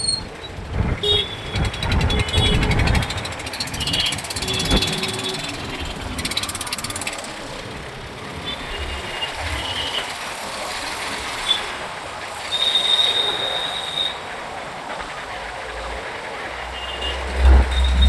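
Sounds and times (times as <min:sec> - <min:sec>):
road traffic noise: 0:00.0 - 0:18.0
rapid ticking: 0:00.2 - 0:18.0
high-pitched squeal: 0:16.6 - 0:18.0.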